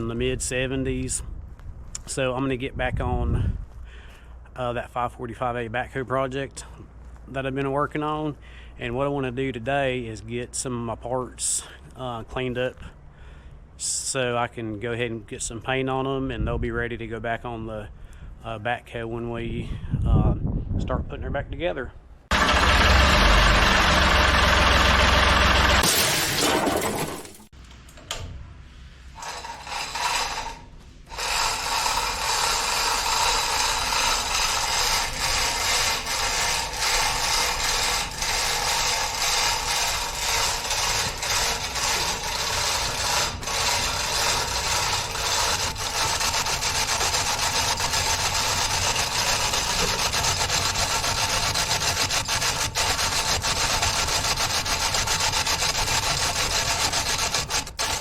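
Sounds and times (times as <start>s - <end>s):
mechanical ratcheting and rubbing: 22.3s - 27.0s, 29.2s - 58.0s.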